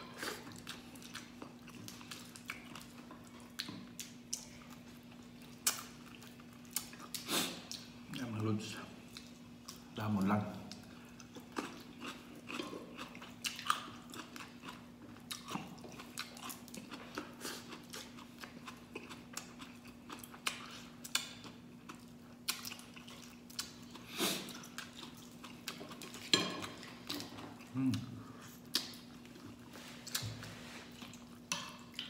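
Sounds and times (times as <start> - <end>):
person chewing and biting: 11.2 - 26.3.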